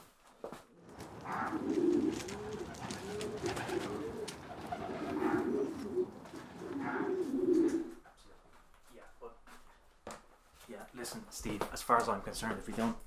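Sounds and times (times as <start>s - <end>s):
pigeons cooing: 0.8s - 8.0s.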